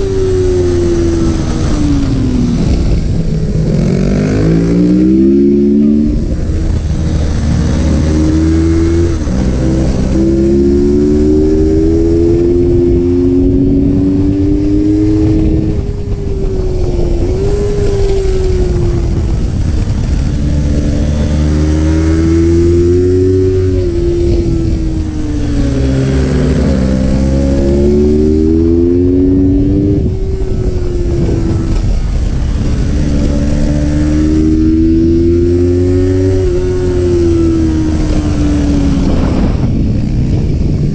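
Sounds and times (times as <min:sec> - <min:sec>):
low wind rumble: 0:00.0 - 0:40.9
motorcycle engine revving: 0:00.0 - 0:40.9.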